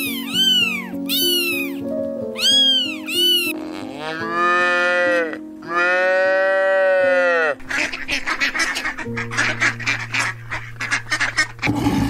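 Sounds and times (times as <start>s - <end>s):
cat meowing: 0.0s - 7.5s
simple background music: 0.0s - 12.0s
cow mooing: 3.5s - 7.6s.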